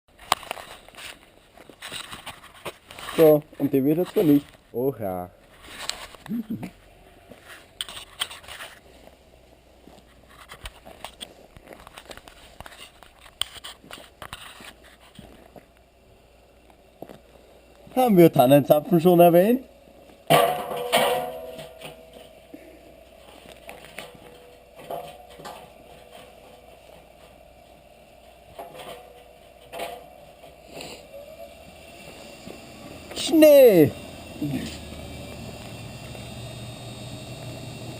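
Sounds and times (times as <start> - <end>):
washing machine motor hum: 24.1 - 37.9.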